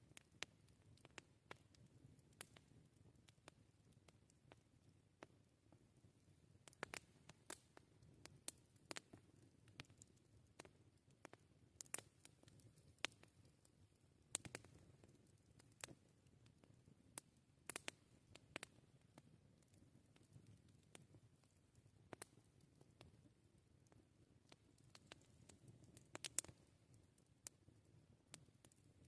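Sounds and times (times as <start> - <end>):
campfire crackling: 0.0 - 29.0
burning wood popping: 6.6 - 13.4, 14.3 - 23.2, 23.8 - 26.7.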